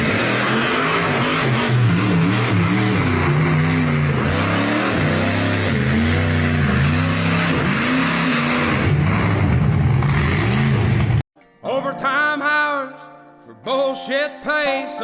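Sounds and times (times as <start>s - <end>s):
truck engine revving: 0.0s - 11.2s.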